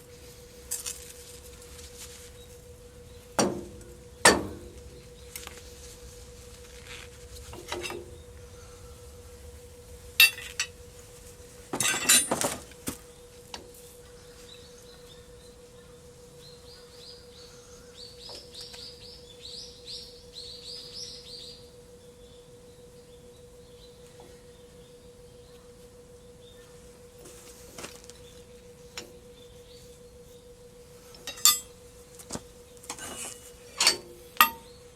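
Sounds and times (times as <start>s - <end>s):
steady hum: 0.0s - 34.9s
metal clinking: 11.8s - 12.6s, 31.2s - 31.7s, 32.9s - 34.7s.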